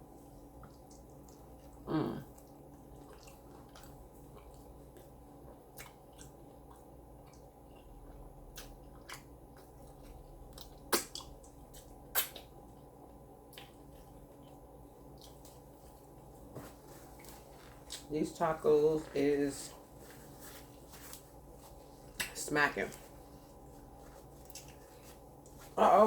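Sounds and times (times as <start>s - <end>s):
person chewing: 0.2s - 18.1s, 23.2s - 25.8s
mouth clicks and smacks: 10.6s - 12.5s.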